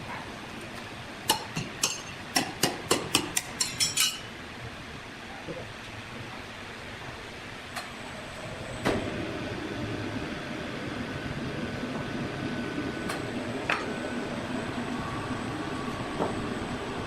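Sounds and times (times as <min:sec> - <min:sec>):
thin machine whine: 0:07.9 - 0:17.0.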